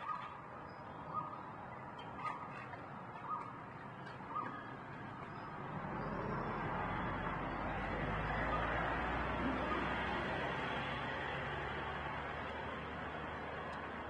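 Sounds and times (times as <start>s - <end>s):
bird calling: 0.0s - 6.5s.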